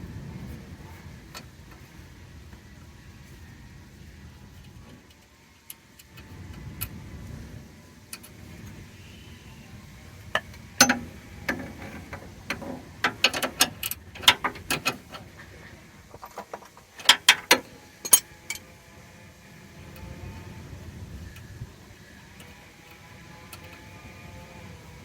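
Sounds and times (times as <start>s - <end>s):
ratchet wrench clicking: 18.0s - 18.6s.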